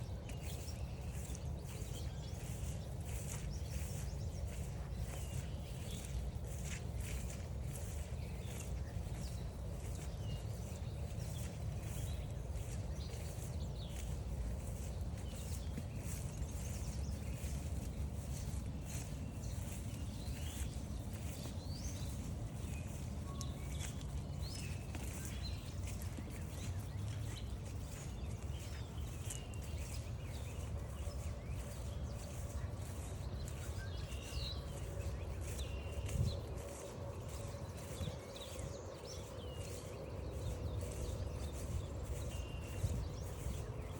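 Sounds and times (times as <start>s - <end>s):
birds chirping: 0.0s - 43.9s
footsteps crunching on trail: 0.0s - 43.9s.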